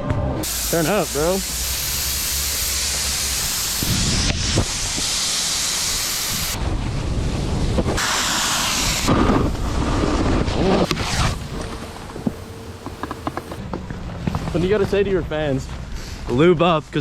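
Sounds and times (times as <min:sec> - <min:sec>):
skis hissing on snow: 0:00.4 - 0:06.6, 0:08.0 - 0:13.6
wind on microphone: 0:03.8 - 0:05.2.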